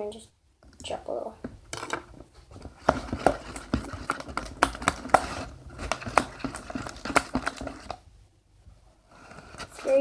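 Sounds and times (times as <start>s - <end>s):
stirring tool tapping plastic container: 0.6s - 8.0s.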